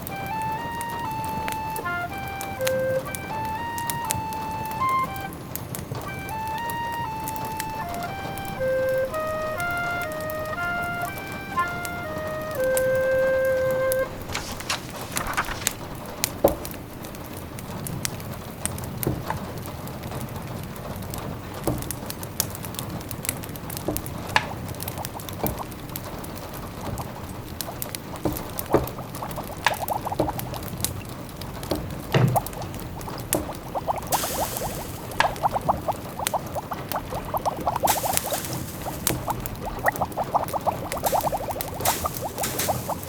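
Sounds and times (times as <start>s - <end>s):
rain pattering: 0.0s - 43.0s
wood fire crackling and popping: 0.0s - 43.0s
simmering pot bubbling: 24.1s - 43.0s
brief hiss: 34.1s - 35.3s, 41.1s - 43.0s.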